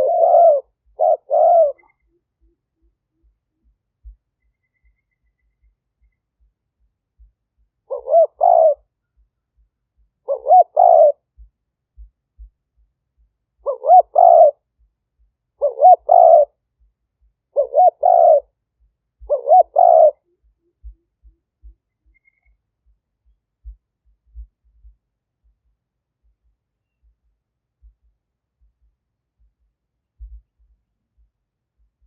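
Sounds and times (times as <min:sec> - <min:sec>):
dove cooing: 0:00.0 - 0:03.3, 0:07.8 - 0:08.9, 0:10.2 - 0:11.4, 0:13.6 - 0:14.6, 0:15.6 - 0:16.6, 0:17.5 - 0:18.6, 0:19.2 - 0:22.2.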